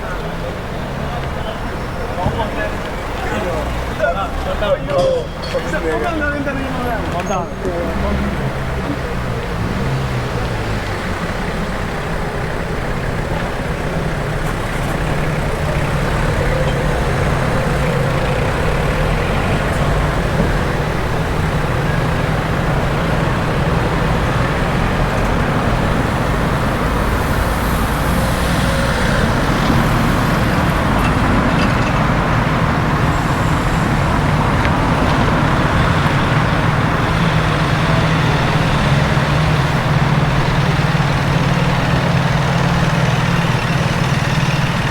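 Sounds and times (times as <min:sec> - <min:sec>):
large engine idling: 0:00.0 - 0:44.9
street traffic: 0:00.0 - 0:44.9.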